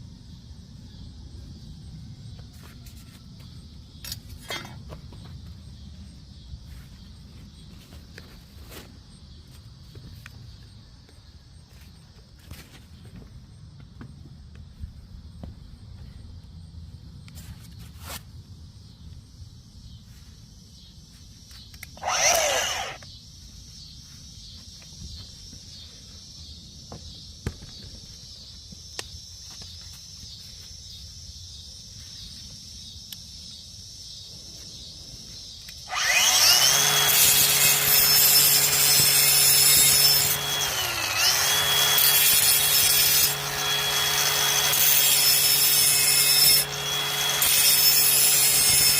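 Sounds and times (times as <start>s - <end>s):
insect chirring: 21.6s - 36.6s
electric lawn mower whine: 21.9s - 23.2s, 35.6s - 48.9s.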